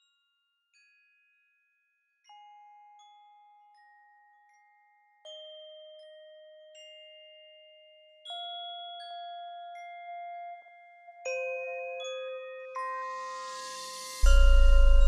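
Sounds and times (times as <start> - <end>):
bell-like tones: 11.6 - 15.0.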